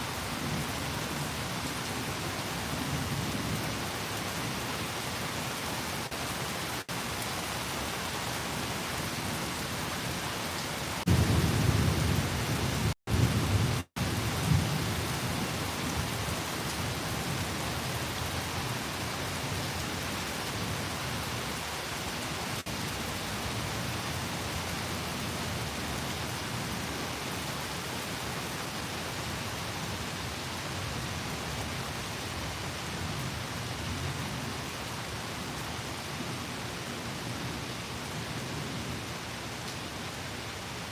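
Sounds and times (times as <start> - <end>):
steady rain falling: 0.0 - 40.9
thunder clap rumbling: 11.0 - 16.1.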